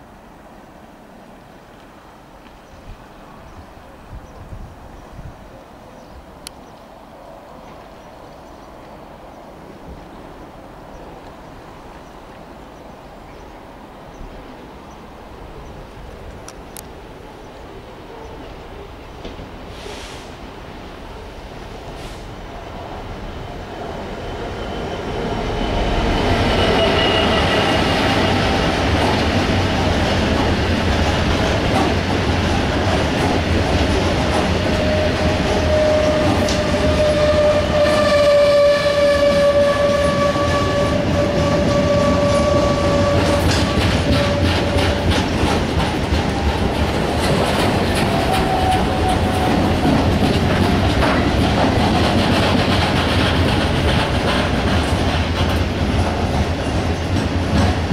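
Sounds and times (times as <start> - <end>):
freight train rumbling past: 0.0 - 57.9
wheels clattering over rail joints: 39.2 - 57.9.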